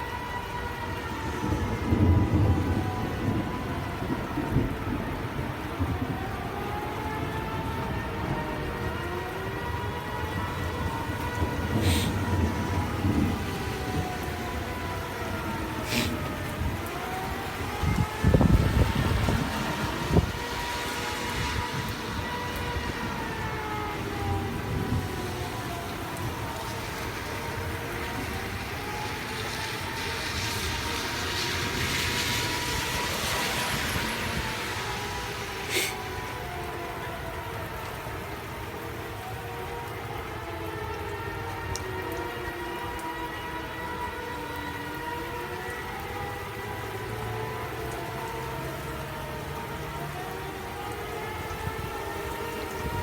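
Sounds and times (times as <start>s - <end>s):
steady rain: 0.0s - 53.0s
tornado warning siren wailing: 0.0s - 53.0s
vehicle tyres hissing on wet road: 10.4s - 37.3s, 43.8s - 53.0s
short hissing bursts: 35.7s - 36.0s.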